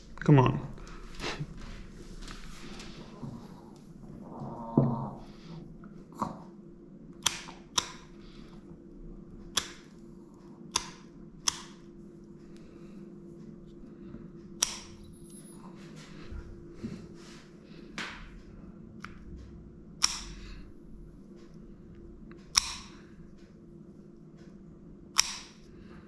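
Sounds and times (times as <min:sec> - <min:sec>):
nail clipper clipping dog nails: 0:14.6 - 0:15.0, 0:20.0 - 0:20.4, 0:22.5 - 0:23.0, 0:25.2 - 0:25.6.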